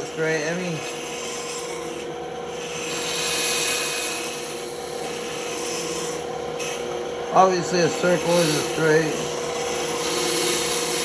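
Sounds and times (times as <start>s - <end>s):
band saw humming: 0.0s - 11.0s
saw blade cutting hiss: 2.8s - 11.0s.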